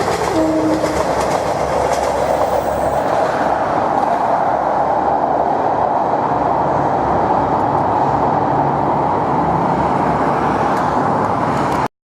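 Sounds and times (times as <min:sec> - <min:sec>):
wheel-on-rail noise: 0:00.0 - 0:03.7.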